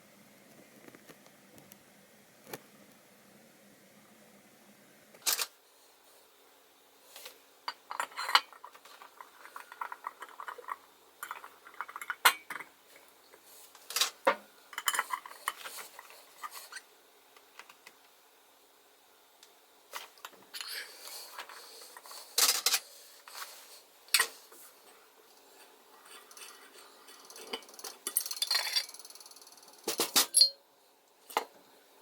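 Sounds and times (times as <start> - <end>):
metal tools clinking: 26.0 - 29.0, 29.9 - 30.6.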